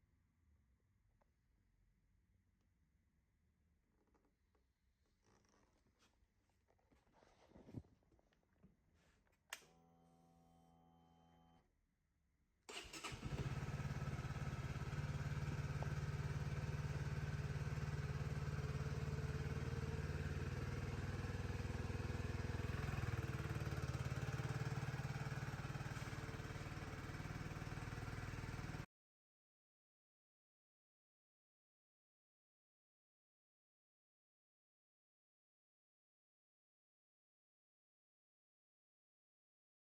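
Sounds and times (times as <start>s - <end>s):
motorcycle engine starting: 12.7s - 28.9s
motorcycle engine idling: 12.8s - 28.8s.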